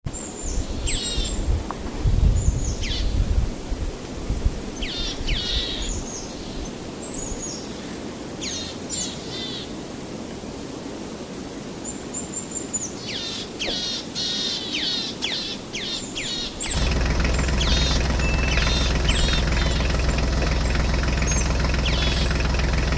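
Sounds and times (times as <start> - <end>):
low wind-like rumble: 0.4 - 7.5
small birds chirping: 12.4 - 22.9
small engine running: 16.7 - 22.9.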